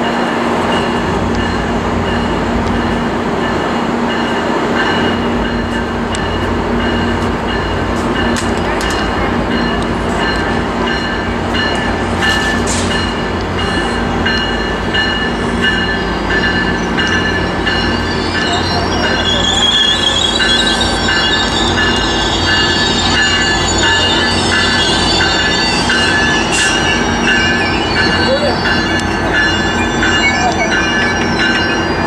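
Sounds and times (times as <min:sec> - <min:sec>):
diesel locomotive rumbling: 0:00.0 - 0:32.0
high wheel squeal: 0:15.1 - 0:32.0.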